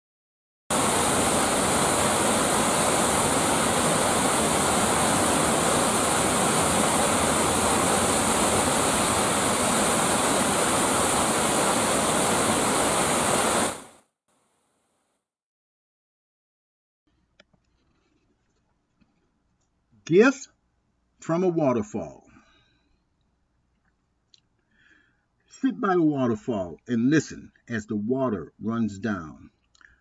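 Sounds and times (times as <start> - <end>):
waterfall rushing: 0.7 - 13.9.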